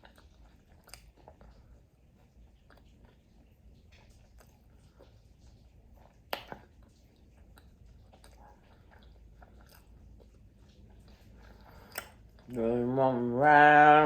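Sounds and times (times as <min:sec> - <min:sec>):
wet mouth clicks: 0:00.0 - 0:01.7, 0:06.0 - 0:12.6
person chewing fried food: 0:00.0 - 0:13.1.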